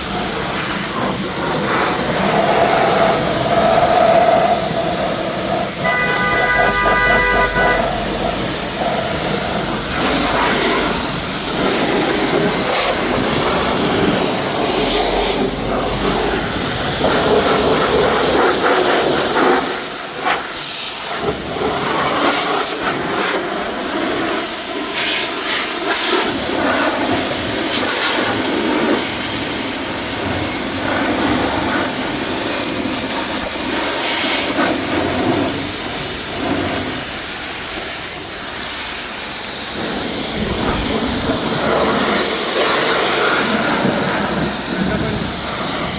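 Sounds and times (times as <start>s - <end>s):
car wash equipment hissing: 0.0s - 45.9s
brief whine: 5.8s - 8.4s.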